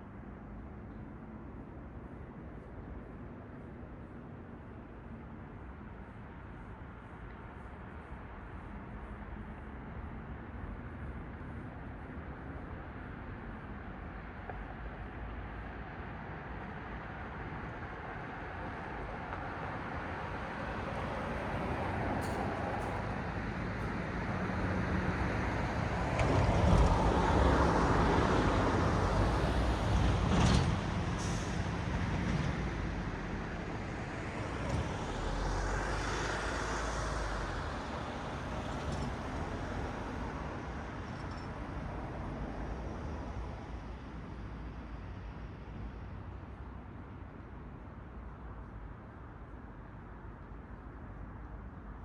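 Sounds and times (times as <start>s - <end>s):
vehicles passing on street: 10.5s - 52.0s.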